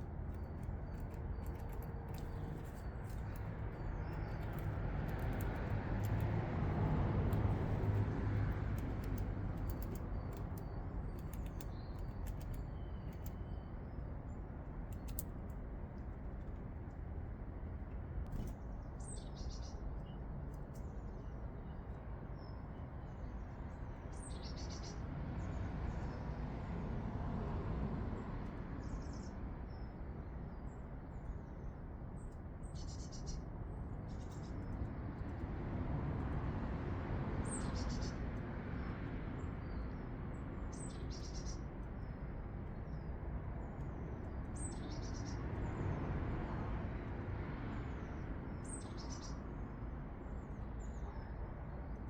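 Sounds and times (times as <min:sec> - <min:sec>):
small birds chirping: 0:00.0 - 0:17.0, 0:28.8 - 0:35.5, 0:37.4 - 0:46.1, 0:47.8 - 0:52.0
low background rumble: 0:00.0 - 0:19.0.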